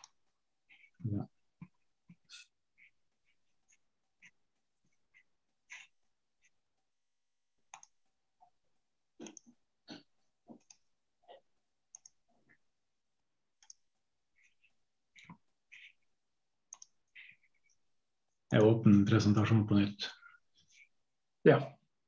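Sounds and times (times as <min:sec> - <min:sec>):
mouse and keyboard clicking: 0:07.7 - 0:08.0, 0:11.9 - 0:12.2, 0:16.7 - 0:17.0.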